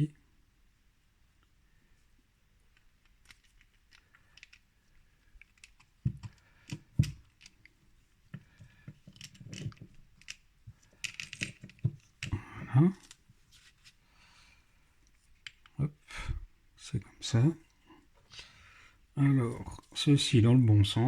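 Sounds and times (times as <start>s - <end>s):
small metal parts clicking: 2.7s - 7.7s, 8.6s - 12.4s, 13.0s - 13.2s.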